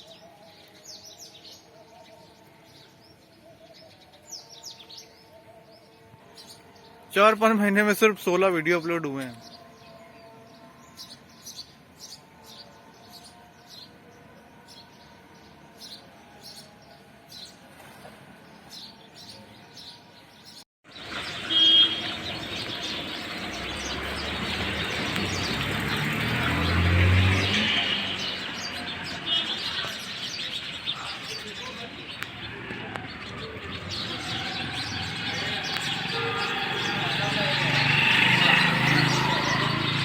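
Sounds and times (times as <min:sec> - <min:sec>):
small birds chirping: 0:18.6 - 0:27.6.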